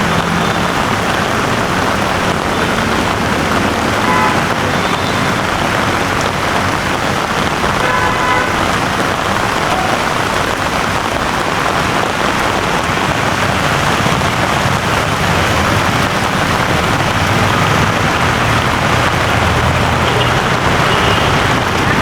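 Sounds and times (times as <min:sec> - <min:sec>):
heavy rain pouring: 0:00.0 - 0:22.0
road traffic rumble: 0:00.0 - 0:22.0.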